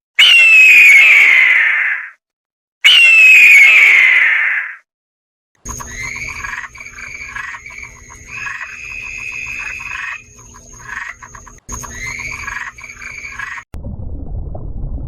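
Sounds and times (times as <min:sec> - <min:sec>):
steady high whine: 0:05.6 - 0:13.7
low hum: 0:05.6 - 0:15.0
animal calls: 0:05.7 - 0:13.7.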